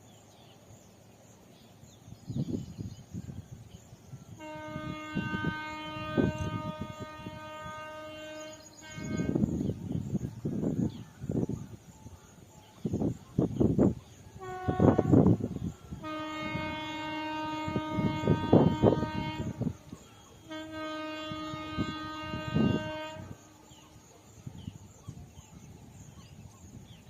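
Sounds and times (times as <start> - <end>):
train horn blasts: 4.3 - 10.3, 14.3 - 24.8.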